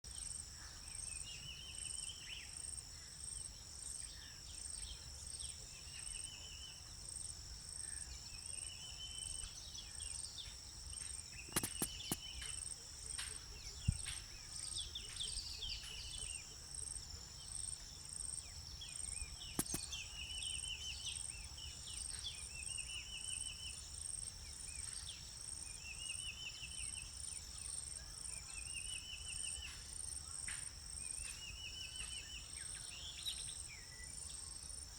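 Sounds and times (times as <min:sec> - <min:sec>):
insects shrilling: 0:11.4 - 0:12.6, 0:19.6 - 0:20.0
sharp clicks: 0:11.5 - 0:12.6, 0:19.6 - 0:19.9.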